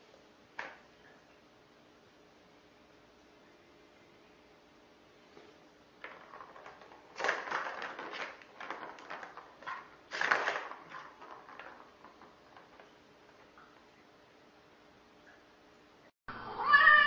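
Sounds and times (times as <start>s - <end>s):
rustling and crackling: 5.2s - 14.3s.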